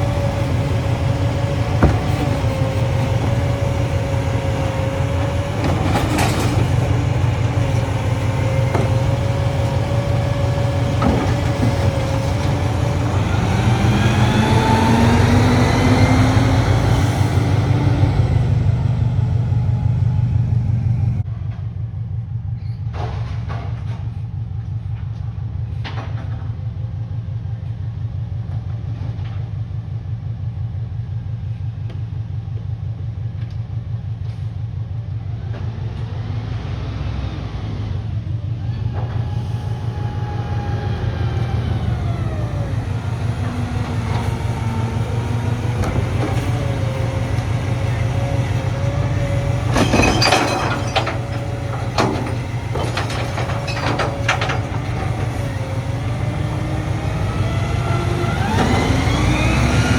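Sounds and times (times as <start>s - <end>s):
garbage truck diesel engine: 0.0s - 59.9s
rising and falling whine: 12.0s - 21.2s, 35.9s - 49.7s, 55.6s - 59.9s.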